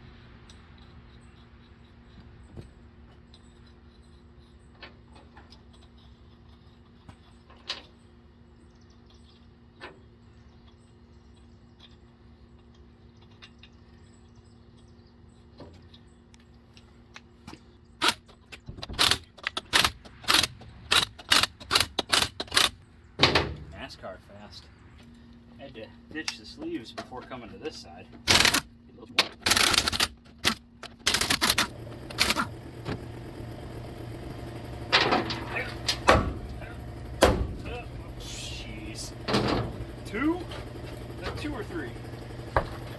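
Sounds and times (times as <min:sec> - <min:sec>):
impact wrench bursts: 0:18.9 - 0:22.8, 0:28.2 - 0:28.7, 0:29.4 - 0:42.9.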